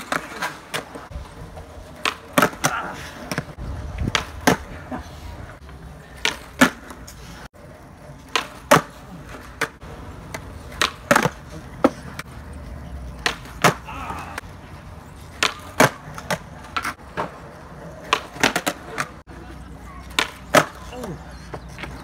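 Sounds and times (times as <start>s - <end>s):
skateboard landing clack: 1.9s - 4.8s, 6.2s - 7.0s, 8.2s - 12.3s, 13.2s - 13.8s, 15.3s - 17.4s, 18.0s - 19.2s, 20.1s - 20.8s.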